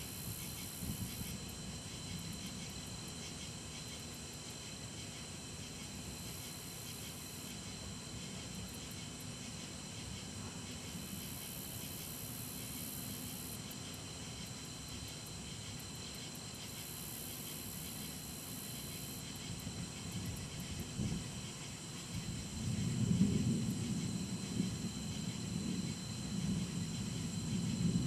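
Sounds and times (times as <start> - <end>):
steady outdoor hiss: 0.0 - 28.0
distant thunder rumble: 22.1 - 28.0.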